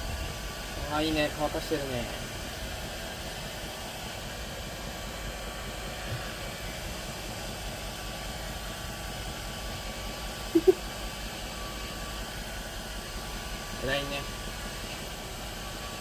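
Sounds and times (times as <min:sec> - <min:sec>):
short pitched sounds: 0:10.6 - 0:10.8.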